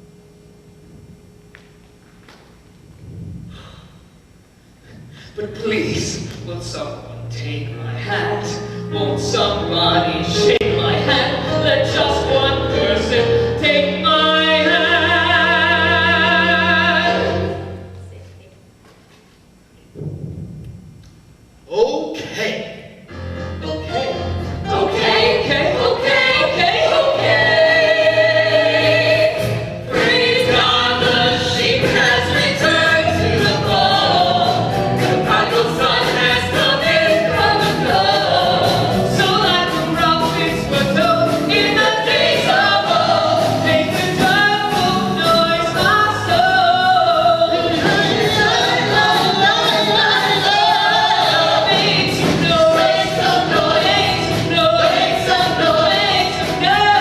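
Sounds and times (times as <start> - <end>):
choir singing gospel song: 7.9 - 17.9, 24.0 - 57.0.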